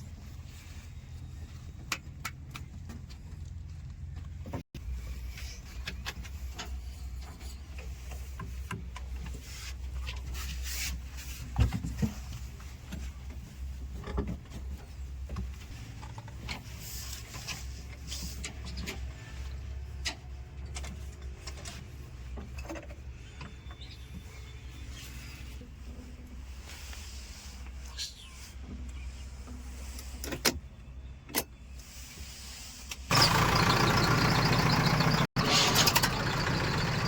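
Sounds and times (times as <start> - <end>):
heavy diesel machinery running: 33.1 - 37.0.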